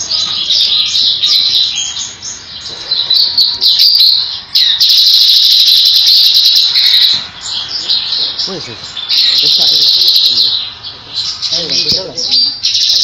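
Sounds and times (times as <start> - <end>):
bird chattering song: 0.0 - 13.0.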